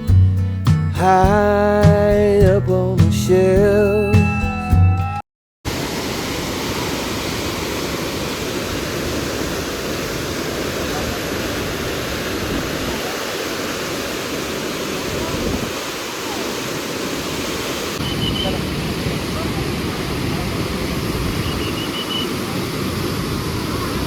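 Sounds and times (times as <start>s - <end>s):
waterfall rushing: 5.7s - 24.0s.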